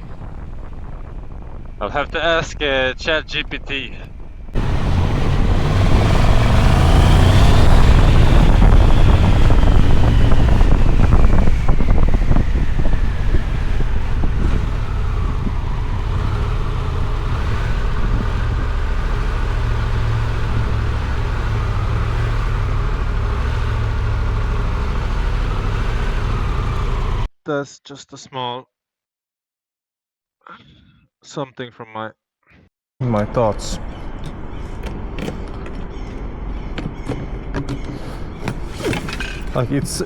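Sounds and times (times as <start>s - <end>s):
wind buffeting microphone: 0.0s - 27.3s
motorcycle engine: 4.1s - 27.3s.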